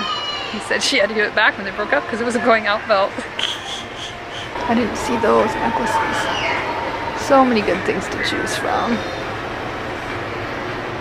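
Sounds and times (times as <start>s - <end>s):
moving vehicle rumble and hiss: 0.7s - 6.2s.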